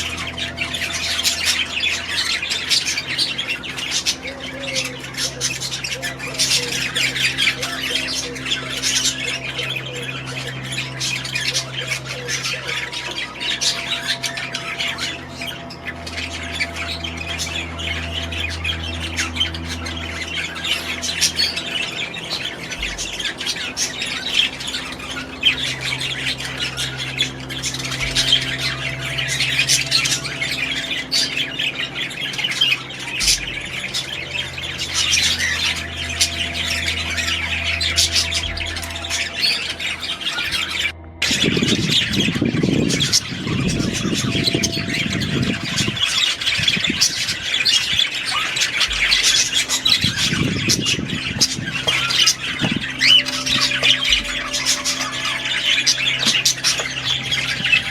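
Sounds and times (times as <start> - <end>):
low steady hum: 0.0 - 57.9
parrots squawking and chattering: 0.0 - 57.9.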